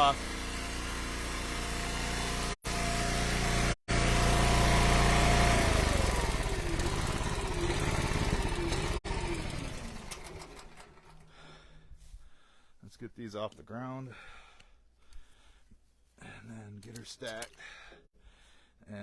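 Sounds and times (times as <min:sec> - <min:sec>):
log splitter engine running: 0:00.0 - 0:11.4.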